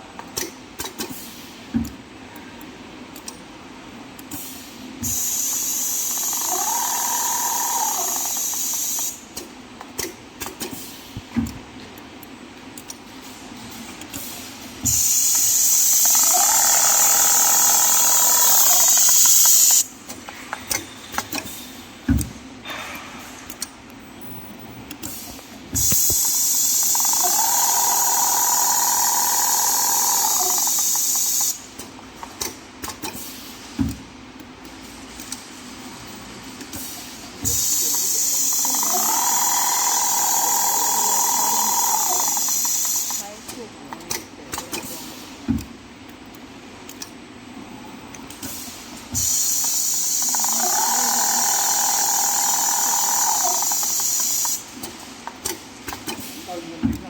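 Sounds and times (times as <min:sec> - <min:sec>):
sewing machine motor whine: 0:05.5 - 0:09.0, 0:15.1 - 0:19.8, 0:26.2 - 0:31.6, 0:37.6 - 0:43.2, 0:49.2 - 0:54.6.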